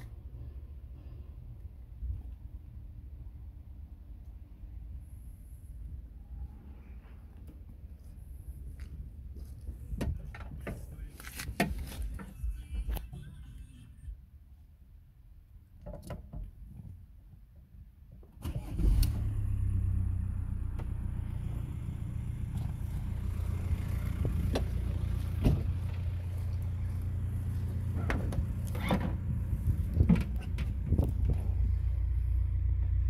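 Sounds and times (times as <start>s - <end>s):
diesel engine starting and idling: 18.4s - 33.0s.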